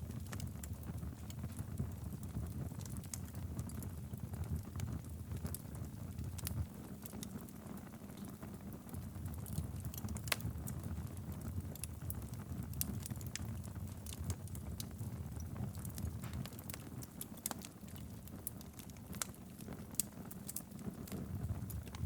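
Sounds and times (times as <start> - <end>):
fire crackling and popping: 0.0 - 22.0
fire flames rumbling: 0.0 - 22.0.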